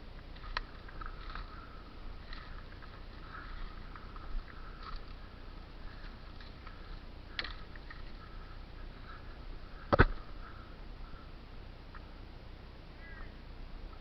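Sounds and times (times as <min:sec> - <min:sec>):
sharp knocks: 0:09.9 - 0:10.2.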